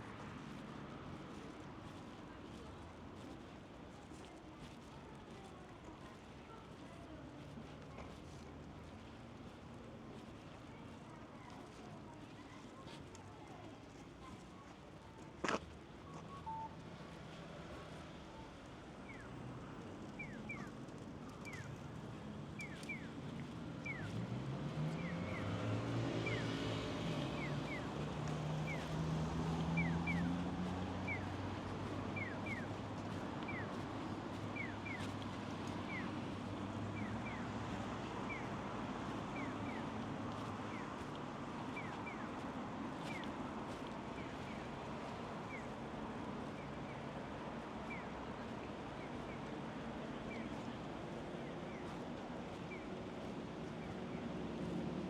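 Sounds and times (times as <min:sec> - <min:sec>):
vehicle engine passing by: 0:24.1 - 0:32.3.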